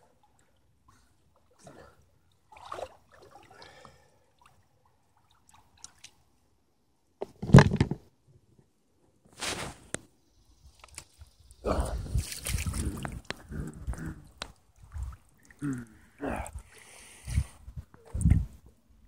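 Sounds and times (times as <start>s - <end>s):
water sloshing around kayak: 0.0s - 6.1s, 12.1s - 13.5s.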